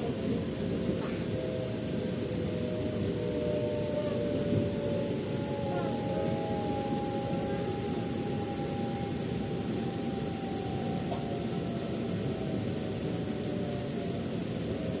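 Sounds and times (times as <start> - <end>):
faint whine: 0.0 - 15.0.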